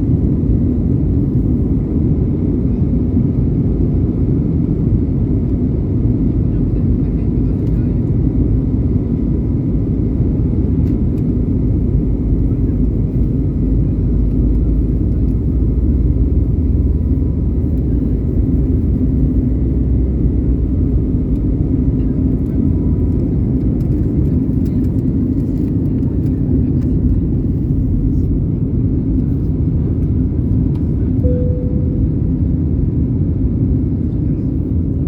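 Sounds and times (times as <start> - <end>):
airliner engine roar on takeoff: 0.0 - 35.0
short single tone: 31.2 - 32.4.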